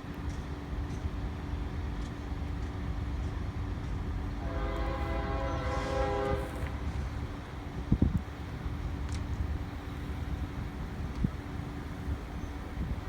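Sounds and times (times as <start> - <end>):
low rumble of passing train: 0.0 - 13.0
locomotive air horn blast: 4.4 - 6.9.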